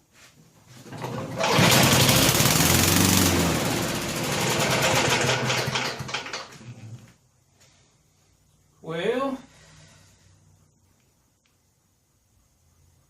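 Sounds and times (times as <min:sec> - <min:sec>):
lawn mower engine running: 0:00.8 - 0:06.6.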